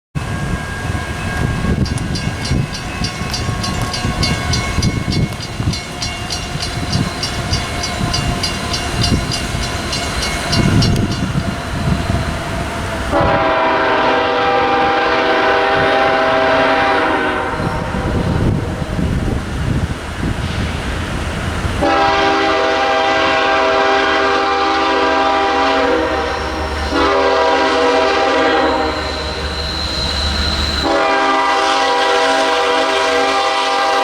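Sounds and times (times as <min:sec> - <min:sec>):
freight train rumbling by: 0:00.2 - 0:34.0
bell ringing: 0:00.8 - 0:11.4
multi-note train horn blast: 0:13.1 - 0:18.2, 0:21.8 - 0:29.6, 0:30.7 - 0:34.0.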